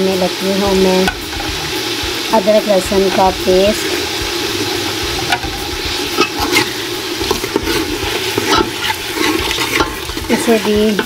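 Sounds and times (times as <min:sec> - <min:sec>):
food sizzling in hot oil: 0:00.0 - 0:11.0
metal ladle scraping pot: 0:03.1 - 0:11.0.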